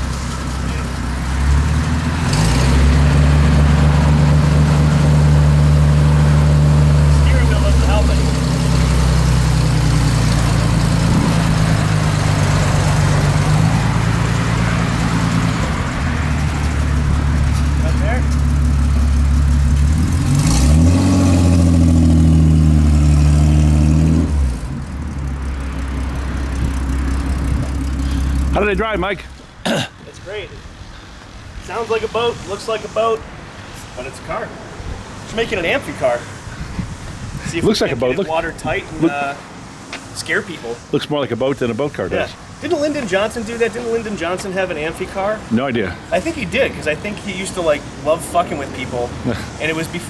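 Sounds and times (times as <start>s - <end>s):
car engine running: 0.0s - 29.0s.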